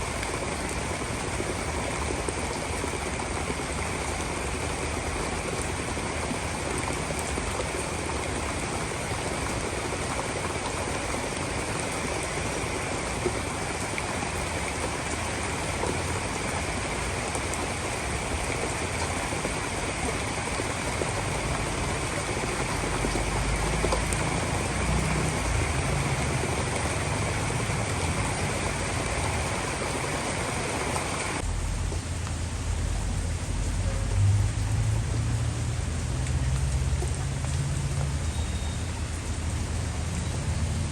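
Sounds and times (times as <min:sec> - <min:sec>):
heavy rain downpour: 0:00.0 - 0:40.9
low rumble: 0:31.4 - 0:36.3.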